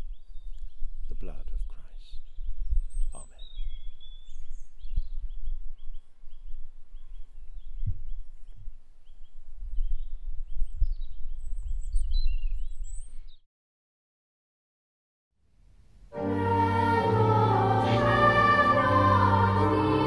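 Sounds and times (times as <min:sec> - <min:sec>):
bird chirping repeatedly: 0:02.1 - 0:07.9.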